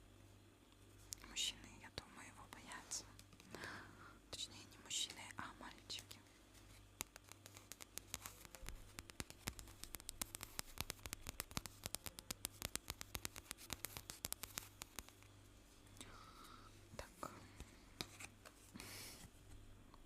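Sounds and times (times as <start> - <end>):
small clicks and taps: 7.0 - 15.3.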